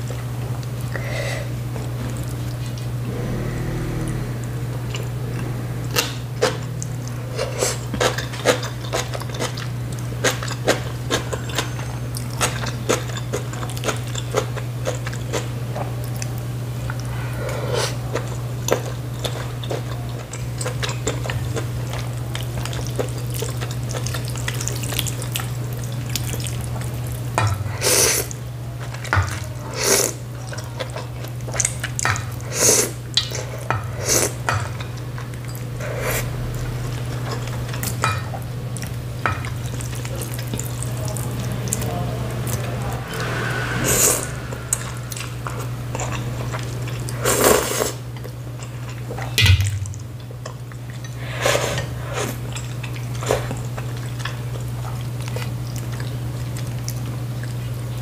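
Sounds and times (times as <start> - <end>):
low hum: 2.6 - 8.4, 35.1 - 47.2.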